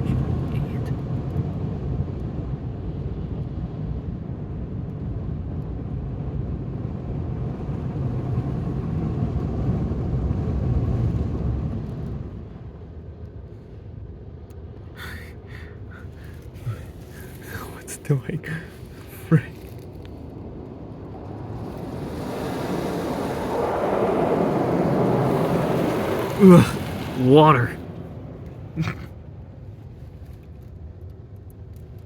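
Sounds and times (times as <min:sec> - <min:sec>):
car wash machinery rumbling: 0:21.3 - 0:27.6.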